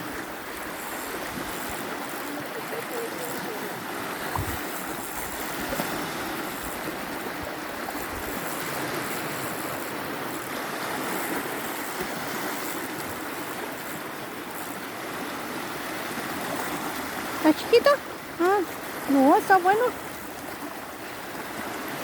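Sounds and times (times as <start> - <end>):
wind buffeting microphone: 0.0 - 10.0
waves lapping and rushing: 0.0 - 22.0.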